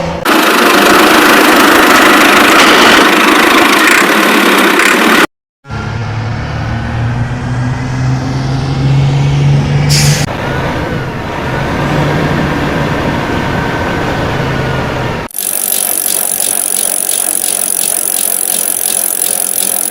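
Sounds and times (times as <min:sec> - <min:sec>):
heavy vehicle engine humming: 0:00.0 - 0:15.3.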